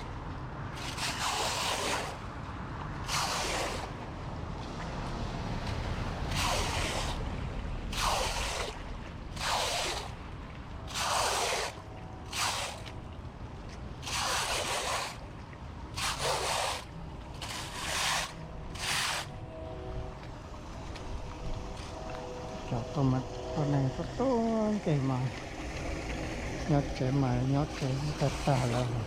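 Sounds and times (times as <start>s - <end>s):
floodwater splashing: 0.0s - 29.0s
low rumble: 16.9s - 29.0s.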